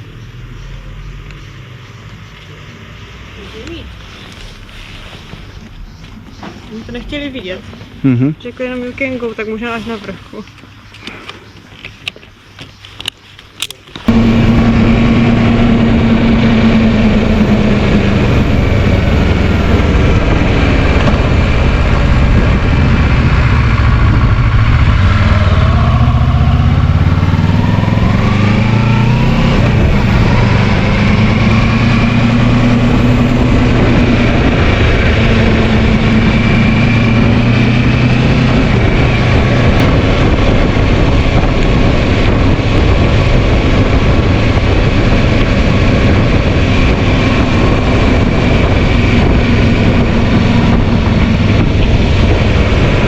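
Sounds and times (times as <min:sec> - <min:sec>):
wind noise: 0:14.0 - 0:53.0
motorcycle engine running: 0:14.1 - 0:53.0.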